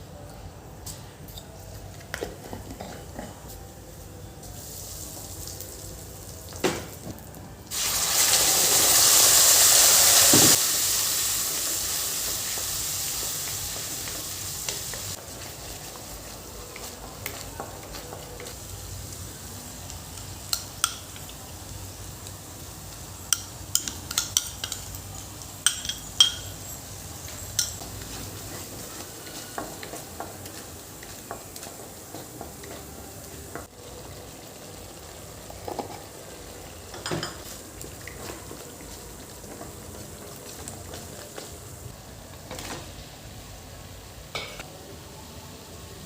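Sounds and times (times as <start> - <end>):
food sizzling in a pan: 4.4 - 46.0
metal spoon clinking on pan: 23.3 - 26.7.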